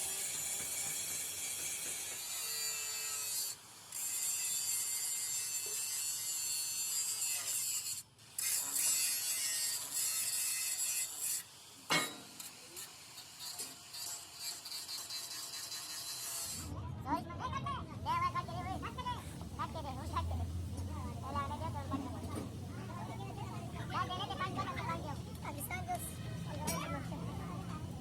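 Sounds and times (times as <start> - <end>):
tool scraping metal: 0.0 - 16.7.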